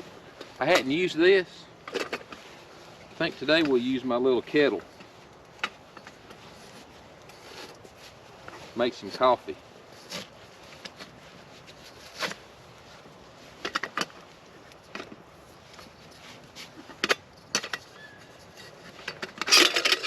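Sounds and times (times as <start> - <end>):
metal rattling: 19.0 - 20.0.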